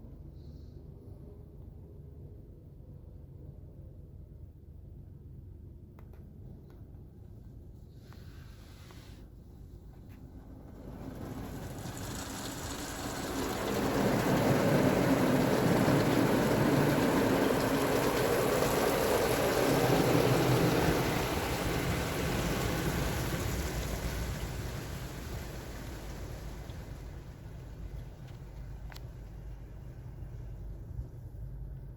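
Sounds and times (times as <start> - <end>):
car wash spray rushing: 10.1 - 31.3.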